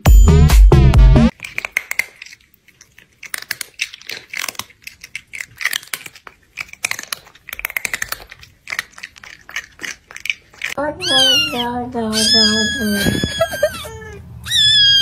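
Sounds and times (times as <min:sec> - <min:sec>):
crunchy chewing: 0:01.3 - 0:11.6.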